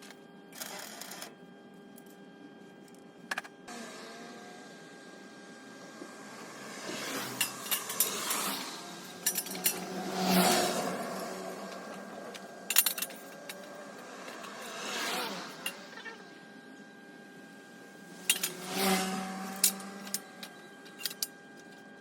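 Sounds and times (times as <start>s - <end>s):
metallic clinks of tools: 9.2s - 9.9s, 19.5s - 21.3s.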